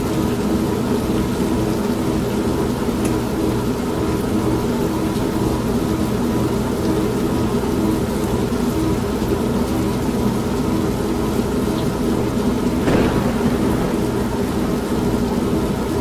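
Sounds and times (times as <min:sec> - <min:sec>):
steady rain: 0:12.7 - 0:15.4
washing machine running: 0:12.8 - 0:15.1.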